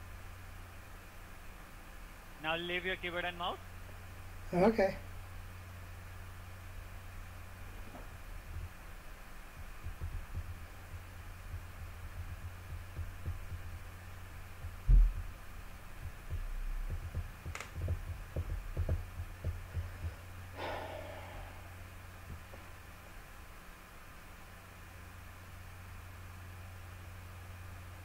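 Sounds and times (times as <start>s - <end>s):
steady low hum: 0.0s - 28.0s
low thumps and knocks: 7.8s - 8.9s, 9.5s - 20.2s, 22.3s - 22.7s.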